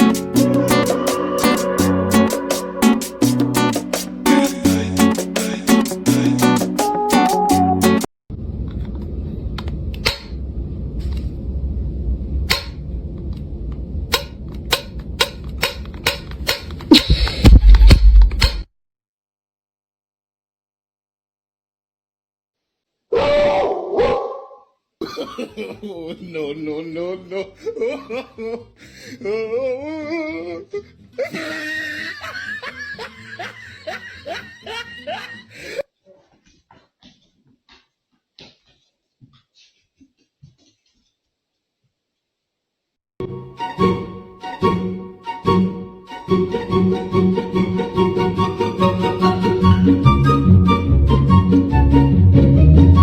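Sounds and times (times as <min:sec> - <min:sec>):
steady low rumble: 0:08.3 - 0:15.6
sharp irregular clicks and knocks: 0:14.1 - 0:16.9
person laughing hard: 0:16.9 - 0:18.0, 0:25.0 - 0:35.8.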